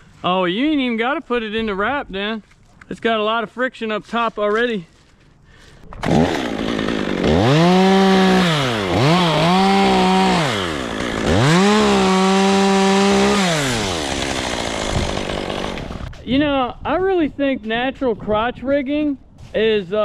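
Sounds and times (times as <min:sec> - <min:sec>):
chainsaw revving: 0:06.0 - 0:16.1.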